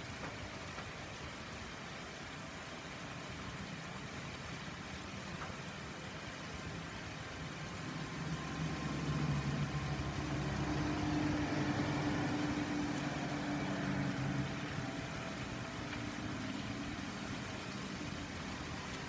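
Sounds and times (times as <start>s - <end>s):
steady rain hiss: 0.0s - 19.0s
vehicle engine running low: 7.2s - 19.0s.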